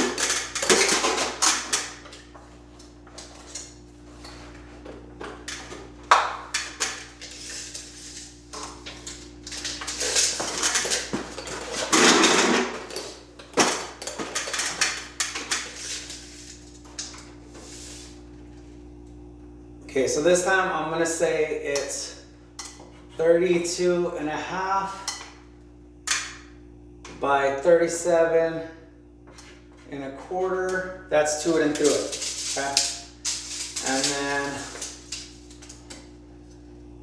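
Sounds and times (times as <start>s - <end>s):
drywall and tools clattering: 0.0s - 17.9s, 29.3s - 36.1s.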